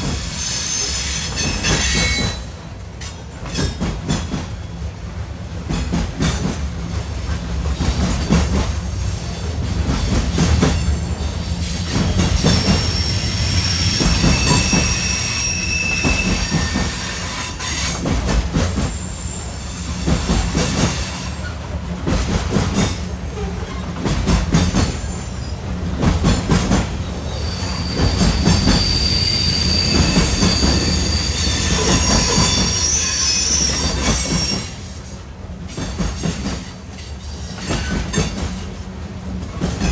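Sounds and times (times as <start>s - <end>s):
freight train wheels rumbling: 0.0s - 39.9s
high-pitched wheel squeal: 0.2s - 2.5s, 11.4s - 18.0s, 27.2s - 34.9s.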